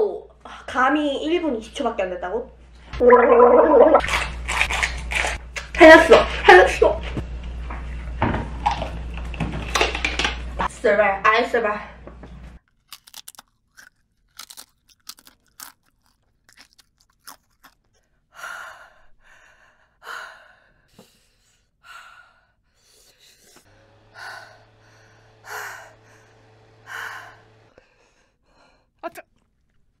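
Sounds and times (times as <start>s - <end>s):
tortilla chip crunching: 4.0s - 5.7s, 12.6s - 18.1s
handheld fan motor humming: 23.7s - 27.8s.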